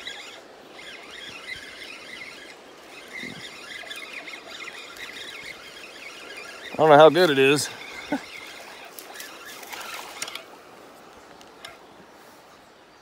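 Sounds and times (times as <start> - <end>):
birds chirping and warbling: 0.0 - 13.0.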